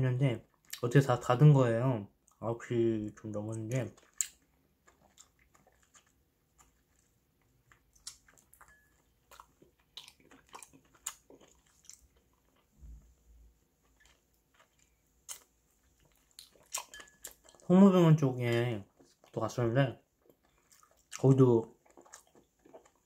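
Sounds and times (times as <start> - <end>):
chewing and mouth clicks: 3.4 - 13.0, 13.8 - 17.7, 18.4 - 19.4, 20.2 - 23.0.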